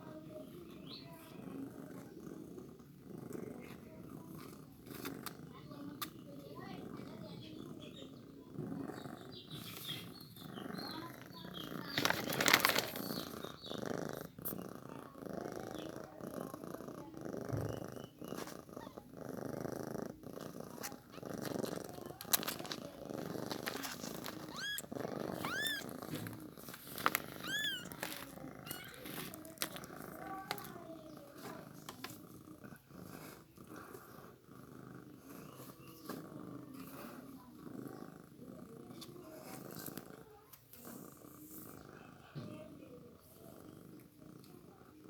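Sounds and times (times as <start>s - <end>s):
cat purring: 0.0s - 45.0s
kittens mewing: 20.8s - 31.4s.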